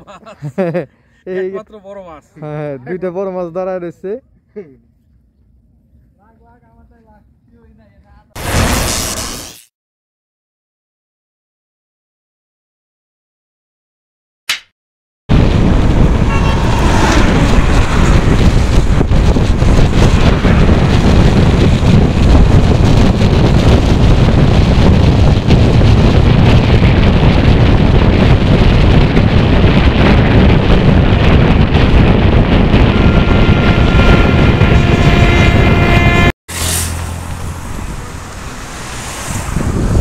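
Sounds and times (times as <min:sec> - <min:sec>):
low hum: 0:15.3 - 0:40.0
moving vehicle rushing noise: 0:15.3 - 0:40.0
wind on microphone: 0:15.3 - 0:40.0.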